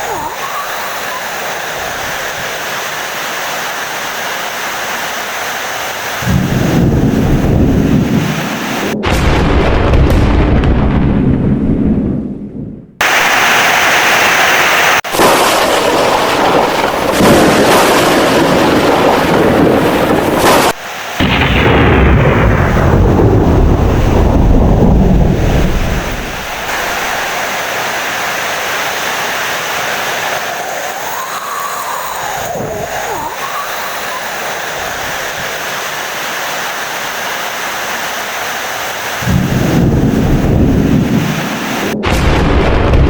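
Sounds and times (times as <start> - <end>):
heavy rain: 0.0 - 9.2, 13.0 - 43.0
rolling thunder: 6.2 - 13.3, 15.1 - 28.3, 39.2 - 43.0.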